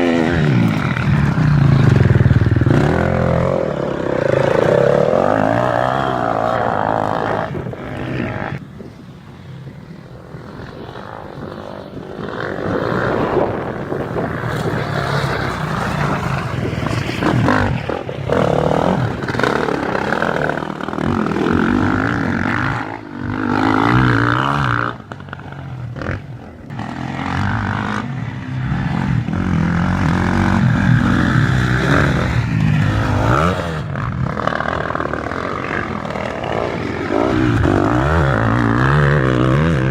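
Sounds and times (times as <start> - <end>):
motocross engines revving: 0.0 - 39.9.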